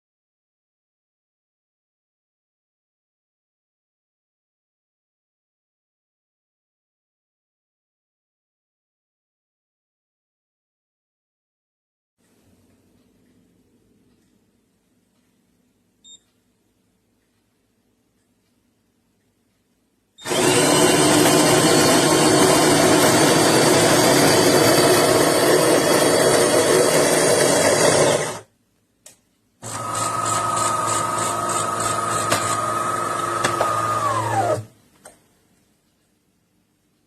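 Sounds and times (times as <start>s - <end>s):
coffee grinder running: 20.2s - 28.5s, 29.6s - 34.7s
espresso machine humming: 20.2s - 28.5s, 29.6s - 34.7s.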